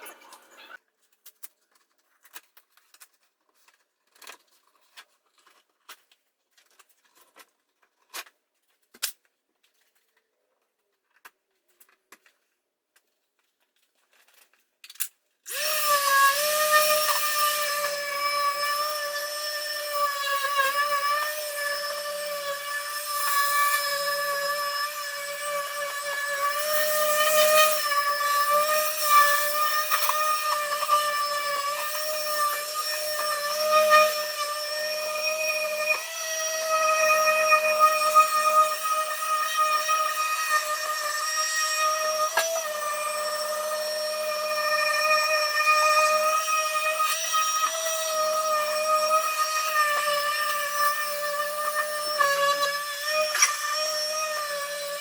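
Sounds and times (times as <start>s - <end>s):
power tool motor whine: 15.5s - 55.0s.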